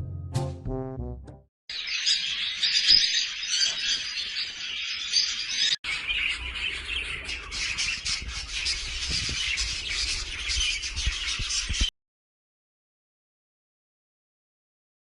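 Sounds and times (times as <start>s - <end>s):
parrot chirping and squawking: 1.7s - 11.7s.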